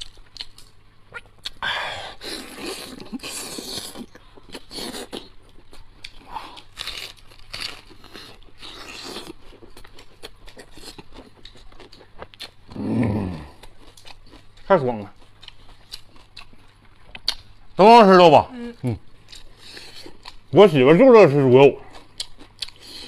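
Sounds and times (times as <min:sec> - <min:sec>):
person chewing and biting food: 0:00.0 - 0:17.7, 0:18.8 - 0:20.5, 0:21.8 - 0:23.0.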